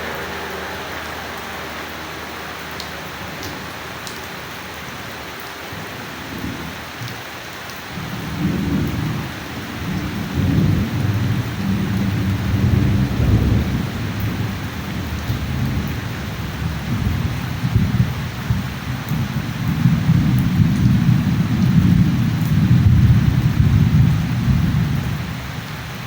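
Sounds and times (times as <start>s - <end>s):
steady rain falling: 0.0s - 26.0s
deep rumble of thunder: 7.9s - 26.0s.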